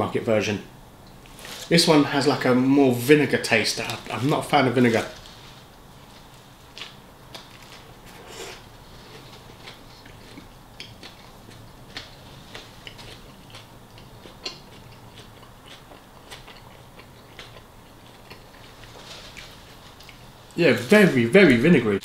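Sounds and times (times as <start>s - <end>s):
person chewing food: 6.2s - 20.4s.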